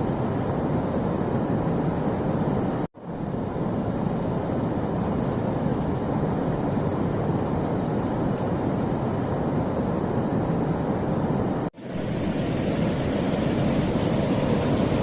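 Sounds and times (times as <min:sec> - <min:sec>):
waterfall rushing: 0:11.8 - 0:15.0.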